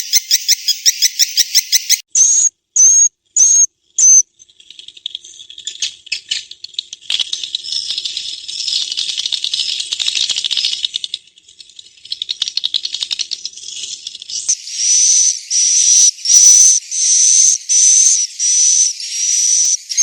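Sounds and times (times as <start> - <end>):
buzzy swiftlet chirps: 0.0 - 4.2.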